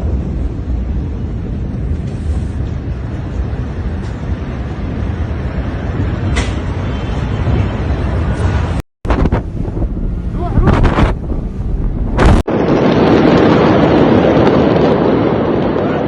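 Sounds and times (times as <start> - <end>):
low rushing rumble: 0.0 - 16.0.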